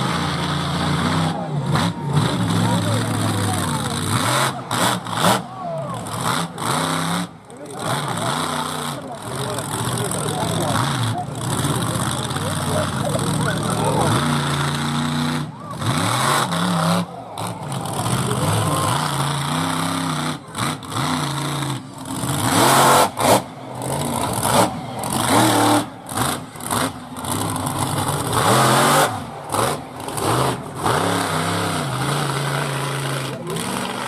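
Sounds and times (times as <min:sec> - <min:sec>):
truck engine revving: 0:00.0 - 0:34.0.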